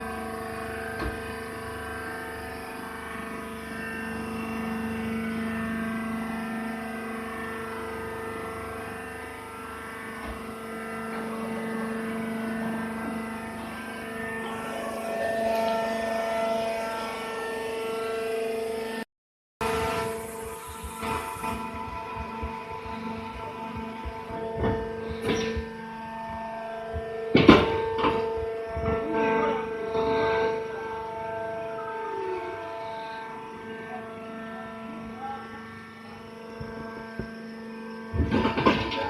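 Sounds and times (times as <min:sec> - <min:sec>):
hydraulic baler humming: 0:00.0 - 0:19.0, 0:19.6 - 0:39.0
hydraulic hiss: 0:19.7 - 0:26.6.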